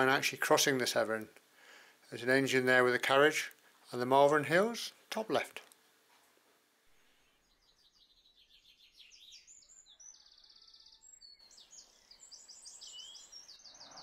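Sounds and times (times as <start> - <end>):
bird chirping and trilling: 7.1 - 14.0.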